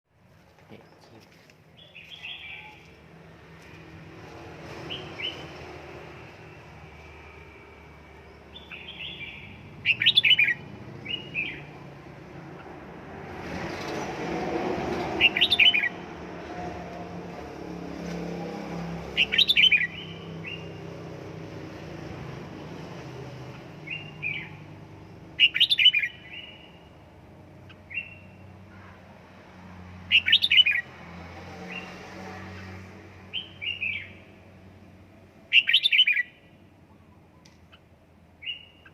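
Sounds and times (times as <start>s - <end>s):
soft bird calls: 0.6s - 3.0s
bird singing rippling notes: 4.9s - 12.8s, 15.1s - 16.1s.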